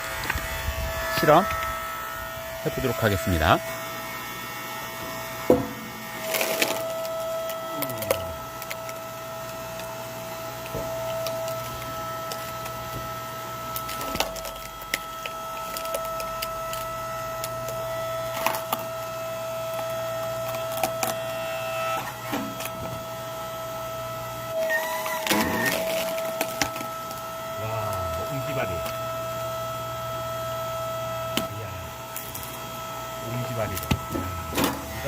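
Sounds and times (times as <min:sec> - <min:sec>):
log splitter humming: 0:00.0 - 0:35.0
wood cracking and splintering: 0:13.7 - 0:19.1, 0:25.2 - 0:27.2.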